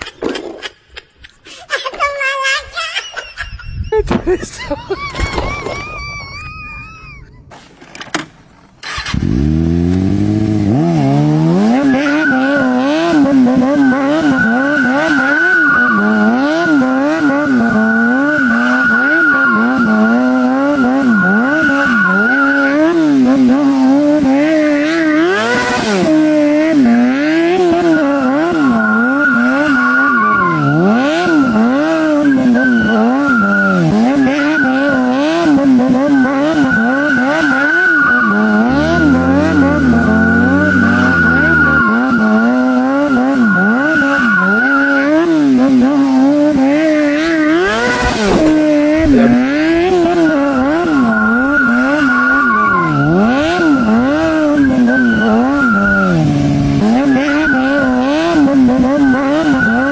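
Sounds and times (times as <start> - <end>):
engine revving hard: 8.8 - 29.7, 32.9 - 52.3
tyre squeal: 11.7 - 22.9, 36.0 - 45.2, 57.0 - 58.0.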